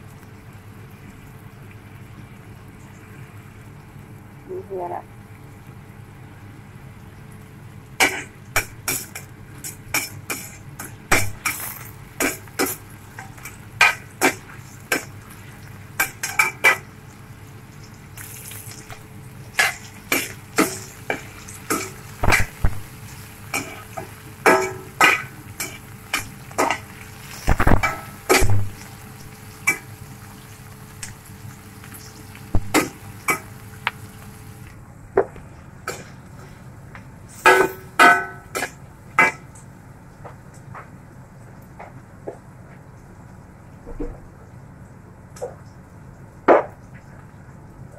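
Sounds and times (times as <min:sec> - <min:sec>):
faint frying sizzle: 0:00.0 - 0:47.9.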